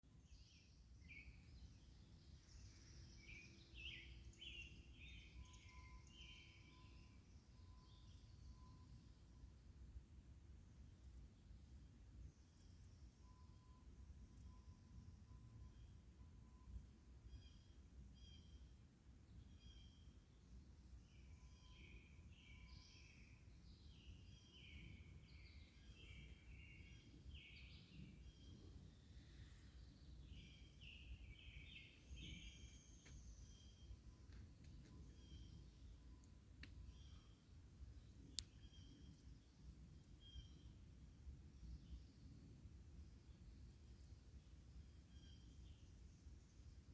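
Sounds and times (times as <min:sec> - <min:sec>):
faint bird chirping: 0:00.0 - 0:09.7, 0:19.3 - 0:46.9.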